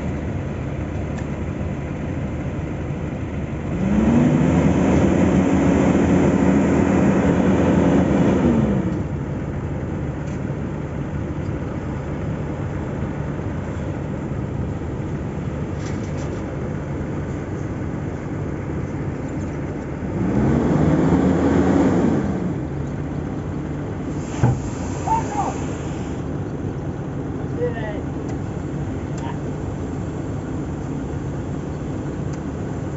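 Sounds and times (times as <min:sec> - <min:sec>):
heavy diesel machinery revving: 0:03.2 - 0:09.8, 0:18.6 - 0:32.9.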